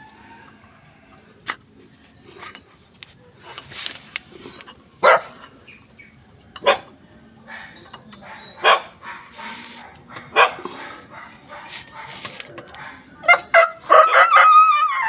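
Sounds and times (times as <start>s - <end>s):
dog barking: 5.0s - 5.4s, 6.6s - 14.6s.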